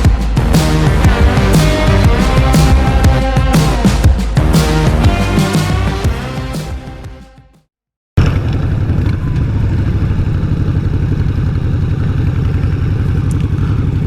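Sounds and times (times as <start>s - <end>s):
motorcycle engine running: 0.0s - 6.9s.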